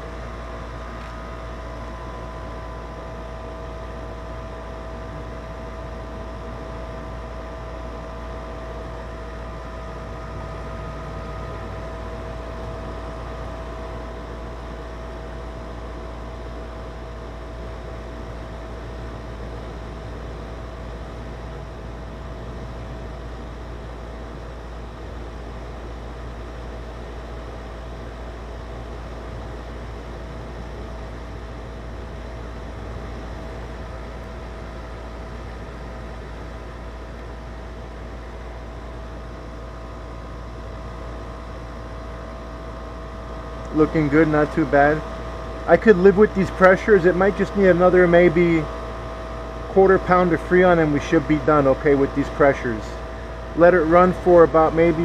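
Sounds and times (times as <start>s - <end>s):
air conditioner unit humming: 0.0s - 55.0s
high-pitched whine: 8.4s - 15.4s, 49.7s - 55.0s.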